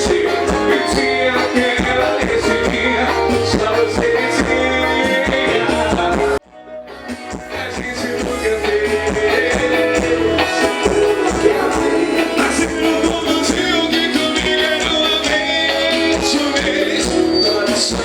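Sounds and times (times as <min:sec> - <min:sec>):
person singing: 0:00.0 - 0:06.4, 0:07.0 - 0:18.0
guitar: 0:00.0 - 0:18.0
live band music: 0:00.0 - 0:18.0.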